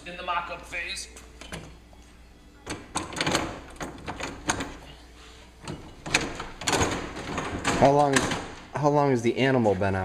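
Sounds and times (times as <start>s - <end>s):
tools clicking and knocking: 2.6s - 4.9s, 5.6s - 8.7s.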